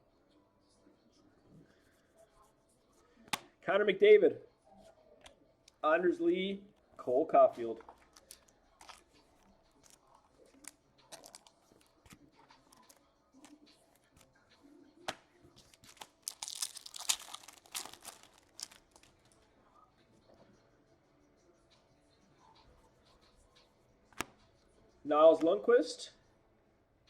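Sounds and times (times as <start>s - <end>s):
cards clicking when handled: 7.9s - 9.2s, 10.6s - 14.3s, 15.1s - 19.3s
wrapper crinkling and tearing: 8.0s - 9.1s, 10.6s - 11.6s, 15.6s - 19.3s.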